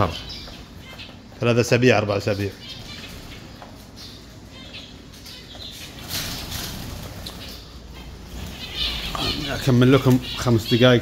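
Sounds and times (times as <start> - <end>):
birds' wings flapping: 5.9 - 7.6.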